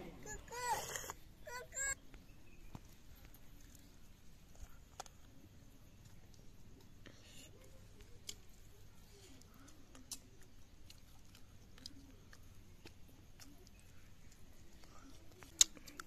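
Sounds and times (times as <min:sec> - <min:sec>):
child chewing and lip-smacking: 0:00.2 - 0:16.0.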